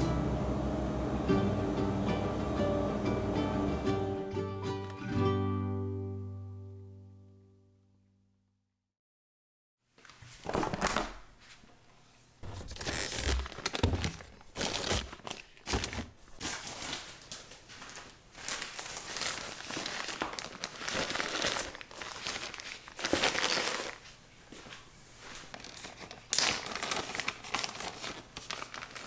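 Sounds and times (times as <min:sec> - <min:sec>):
plastic packaging crinkling: 0:10.4 - 0:11.3, 0:12.4 - 0:24.2, 0:25.4 - 0:29.0.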